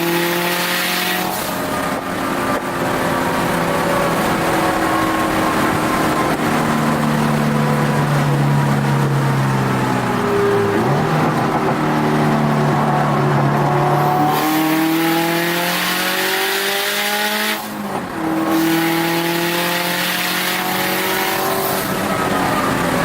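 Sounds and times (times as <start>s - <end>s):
car engine accelerating hard: 0.0s - 23.0s.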